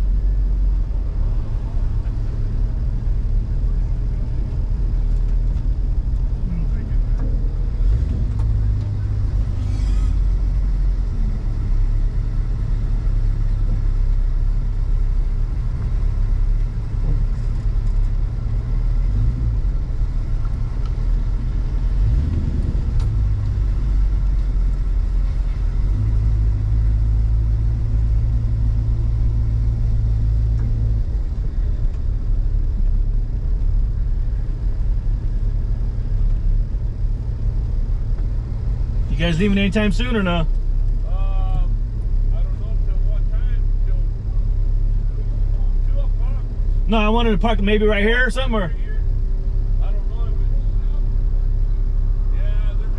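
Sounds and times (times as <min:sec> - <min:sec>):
car engine rumbling: 0:00.0 - 0:52.9.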